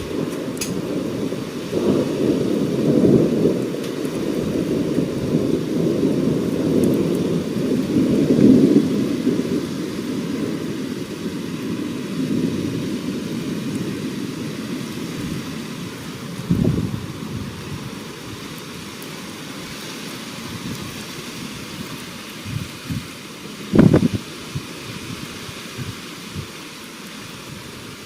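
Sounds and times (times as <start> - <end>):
rolling thunder: 0.0 - 18.5, 23.7 - 24.7.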